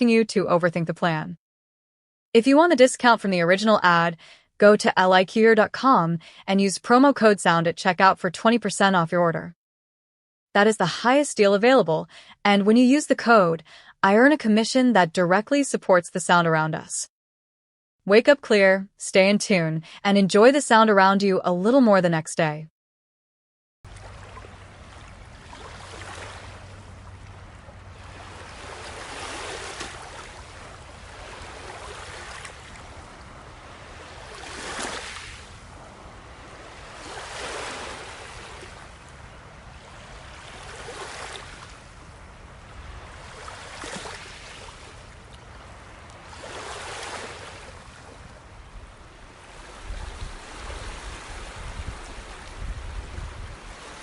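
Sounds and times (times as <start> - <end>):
ocean waves washing onto shore: 23.9 - 54.0.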